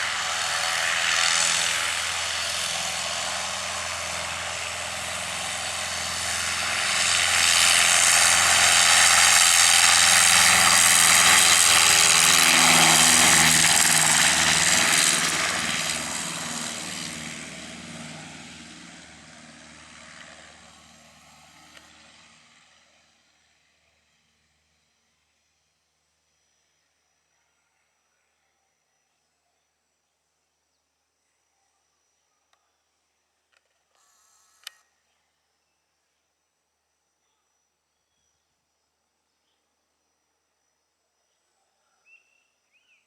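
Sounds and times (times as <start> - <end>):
airplane engine and propeller: 0.0 - 24.2.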